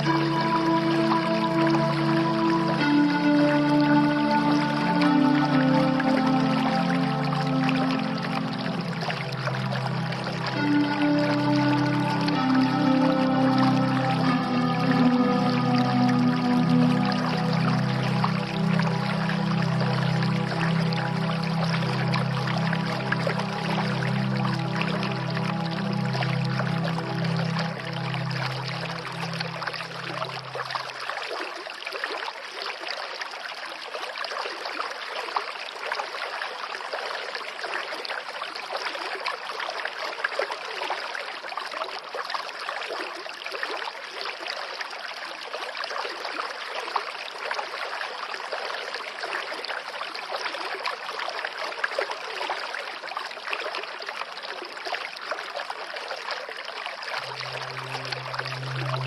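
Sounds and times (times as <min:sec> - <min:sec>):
low steady drone: 0:00.0 - 0:31.0, 0:57.2 - 0:59.0
stream flowing: 0:00.0 - 0:59.0.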